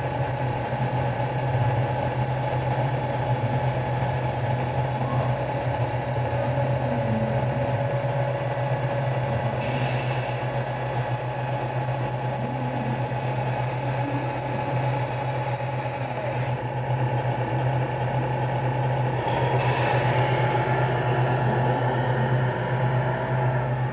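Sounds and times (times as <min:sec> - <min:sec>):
model truck motor humming: 0:00.0 - 0:21.6.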